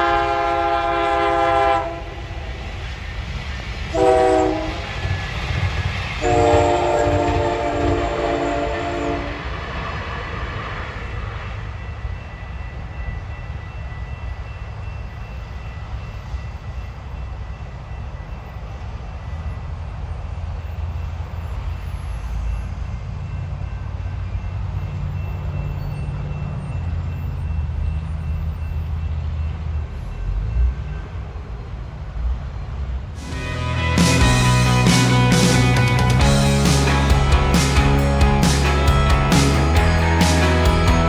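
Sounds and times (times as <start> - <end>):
train horn blast: 0.0 - 2.5, 3.9 - 5.2, 6.2 - 9.6, 33.2 - 41.0
train rumbling past: 0.0 - 41.0.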